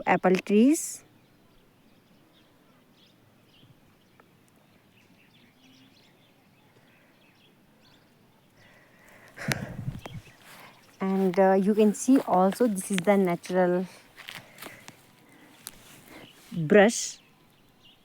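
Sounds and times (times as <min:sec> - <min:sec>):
small birds chirping: 0:00.0 - 0:18.0
brief rustle: 0:09.0 - 0:16.6.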